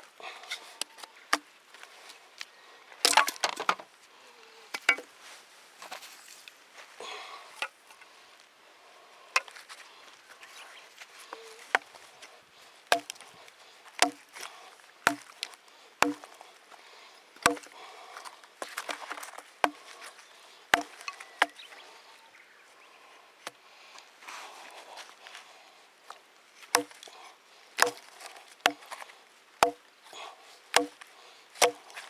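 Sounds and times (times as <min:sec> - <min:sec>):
wood chopping strikes: 0:12.9 - 0:13.2, 0:14.0 - 0:14.3, 0:15.1 - 0:15.4, 0:16.0 - 0:16.3, 0:17.4 - 0:17.7, 0:20.8 - 0:21.6, 0:26.8 - 0:27.1, 0:27.8 - 0:29.0, 0:29.6 - 0:29.8, 0:30.8 - 0:31.0, 0:31.6 - 0:31.9.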